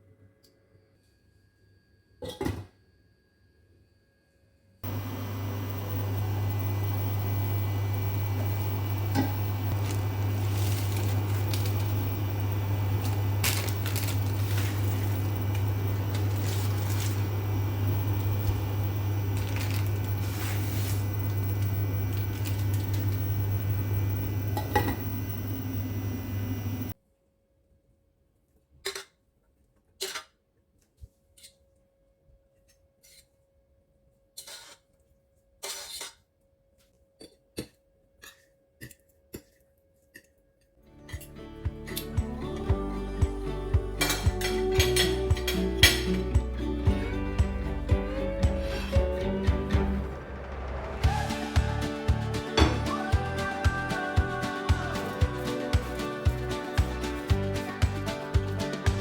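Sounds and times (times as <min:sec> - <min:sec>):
kitchen appliance humming: 0:04.8 - 0:27.0, 0:41.1 - 0:59.0
dishes and utensils clinking: 0:24.6 - 0:25.1, 0:44.0 - 0:46.4.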